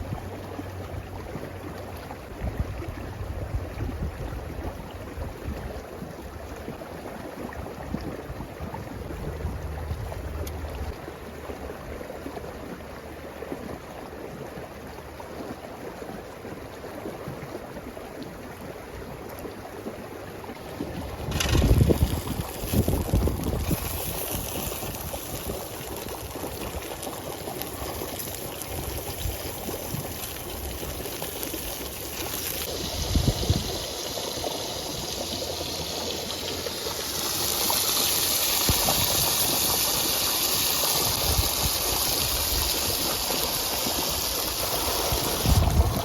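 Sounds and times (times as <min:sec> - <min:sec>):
running water rushing: 0:18.3 - 0:46.0.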